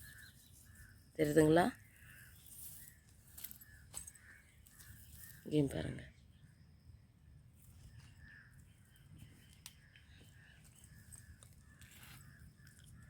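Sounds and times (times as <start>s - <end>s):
faint crows cawing: 0.0s - 1.2s, 1.8s - 5.5s, 7.9s - 13.0s.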